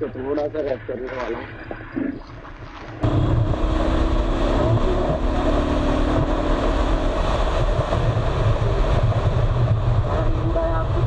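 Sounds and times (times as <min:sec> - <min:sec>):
wind buffeting microphone: 0:00.0 - 0:11.0
motorcycle engine running: 0:03.0 - 0:11.0.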